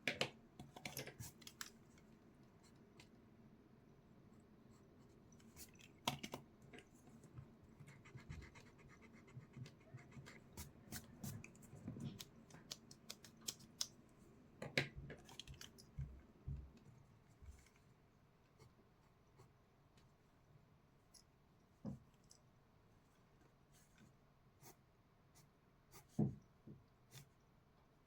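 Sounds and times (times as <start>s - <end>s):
pencil scratching on paper: 7.8s - 11.3s.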